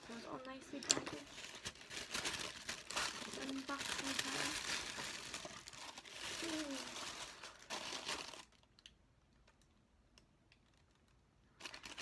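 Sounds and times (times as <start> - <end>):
packaging rustling and crinkling: 0.0 - 8.9, 10.6 - 12.0.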